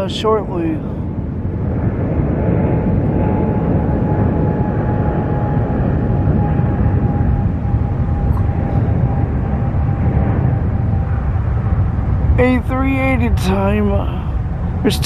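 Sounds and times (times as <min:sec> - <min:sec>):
jet engine rumble and whine: 0:00.0 - 0:15.0.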